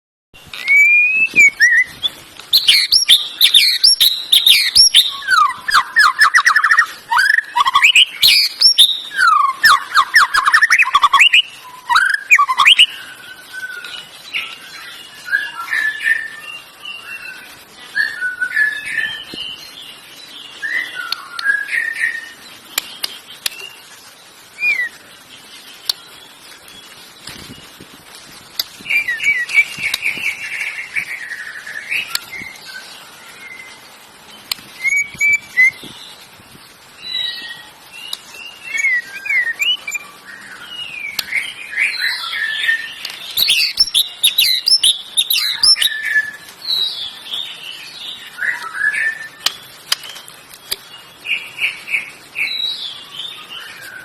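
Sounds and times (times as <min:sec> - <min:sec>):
canary singing: 0:00.4 - 0:17.5, 0:34.8 - 0:36.0, 0:37.1 - 0:54.0.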